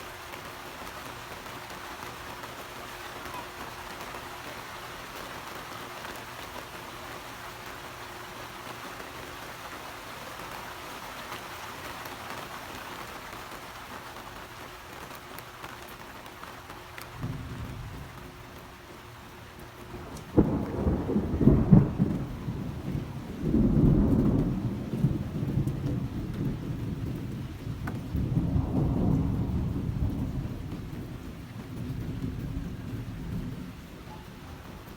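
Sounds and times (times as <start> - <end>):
steady rain: 0.0 - 34.9
low rumble of thunder: 17.1 - 34.9.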